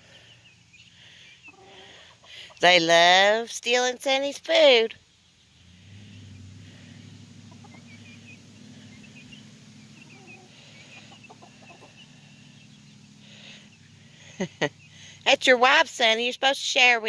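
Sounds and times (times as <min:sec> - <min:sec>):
chickens clucking: 0:00.0 - 0:02.9, 0:06.0 - 0:15.2
chicks peeping: 0:00.1 - 0:02.7, 0:06.1 - 0:15.2
low hum: 0:05.0 - 0:15.3.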